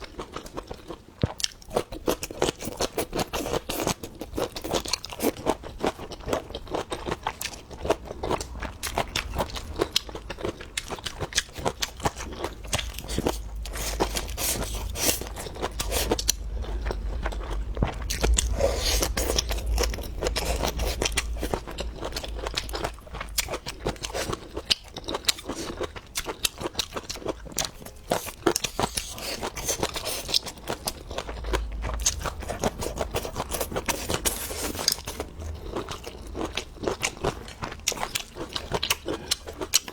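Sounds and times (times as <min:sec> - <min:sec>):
crunchy chewing: 0:00.0 - 0:39.9
low rumble: 0:06.0 - 0:26.0, 0:28.6 - 0:37.9.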